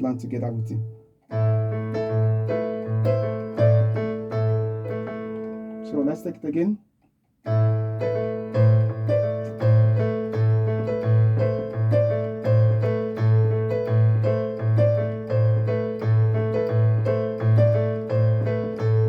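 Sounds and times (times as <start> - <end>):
piano playing: 0.0 - 6.6, 7.4 - 19.0.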